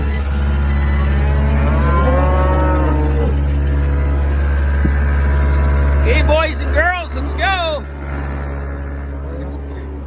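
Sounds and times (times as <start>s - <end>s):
cow mooing: 0.0s - 10.0s
vehicle engine idling: 0.0s - 10.0s.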